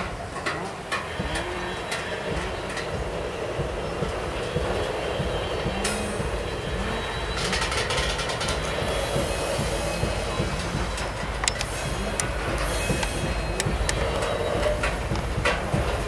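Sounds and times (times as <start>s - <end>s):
faint wheel squeal: 0.0s - 16.0s
steel wheels rumbling on rail: 0.0s - 16.0s
sharp clicks: 7.3s - 16.0s.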